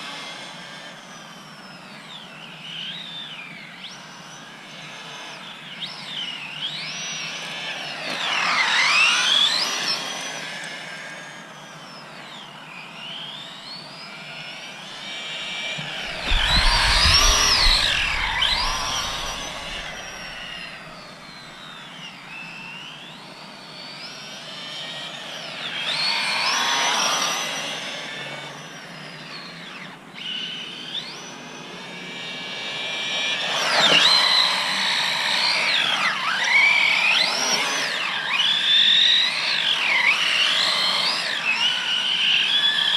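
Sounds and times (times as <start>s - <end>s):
toy electric motor whining: 0.0s - 42.9s
low rumble: 15.8s - 21.4s.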